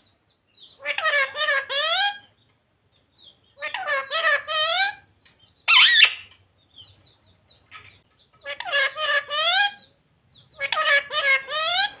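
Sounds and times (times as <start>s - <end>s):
parrot chirping: 0.6s - 2.4s, 3.2s - 7.0s, 8.3s - 12.0s
parrot screeching: 0.8s - 2.2s, 3.6s - 5.0s, 5.7s - 6.3s, 8.5s - 9.8s, 10.6s - 12.0s
parrot talking: 0.8s - 2.3s, 3.6s - 5.0s, 5.7s - 6.3s, 8.4s - 9.9s, 10.5s - 12.0s.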